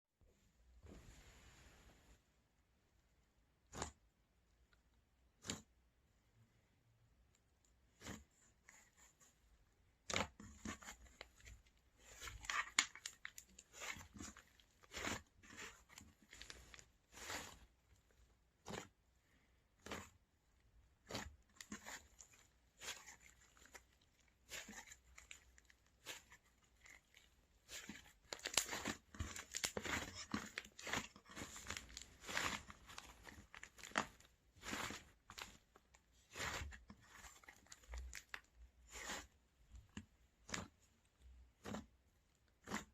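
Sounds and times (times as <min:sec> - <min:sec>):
slime crackling by hand: 0:10.0 - 0:19.0, 0:19.7 - 0:42.9.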